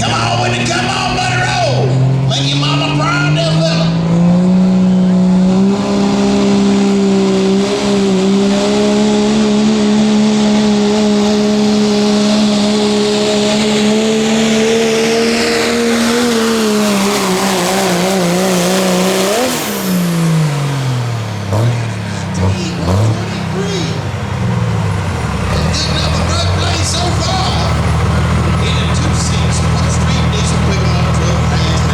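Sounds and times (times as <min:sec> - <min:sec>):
diesel truck engine under load: 0:00.0 - 0:31.9.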